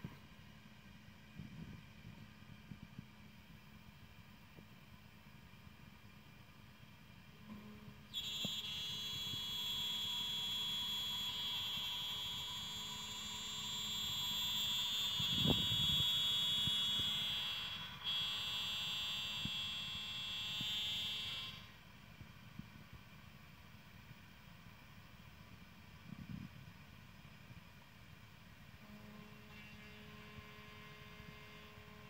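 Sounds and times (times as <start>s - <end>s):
milling spindle whine: 5.3s - 21.8s.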